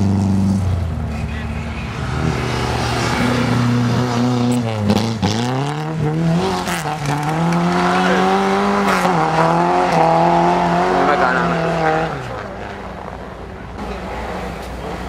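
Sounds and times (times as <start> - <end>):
car engine revving hard: 2.1 - 12.7.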